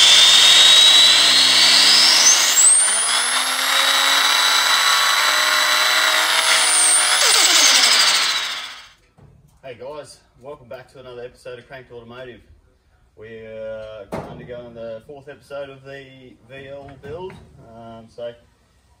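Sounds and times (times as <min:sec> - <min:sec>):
engine revving with high whine: 0:00.0 - 0:08.9.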